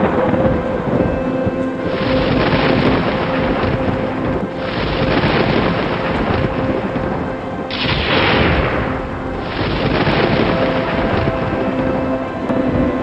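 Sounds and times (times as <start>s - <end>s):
rumbling thunder: 0.0s - 13.0s
steady rain: 0.0s - 13.0s
sharp thunderclap: 1.9s - 12.3s.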